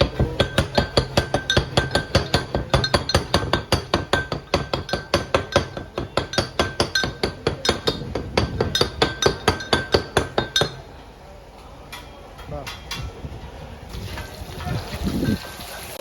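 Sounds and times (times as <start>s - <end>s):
metal utensil knocking: 0.0s - 10.9s.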